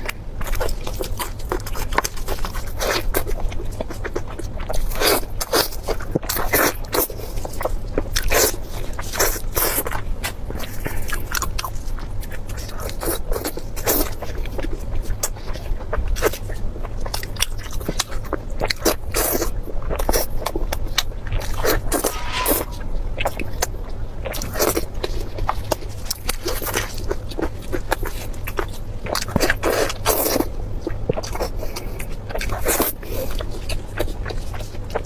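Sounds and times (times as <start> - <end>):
low steady hum: 13.6 - 35.0.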